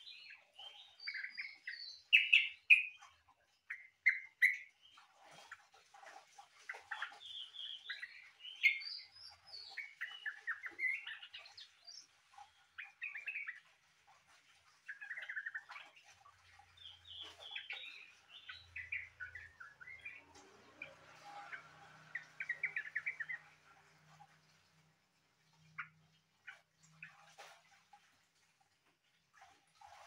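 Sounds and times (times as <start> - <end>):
bird singing chirping phrases: 16.8 - 23.6.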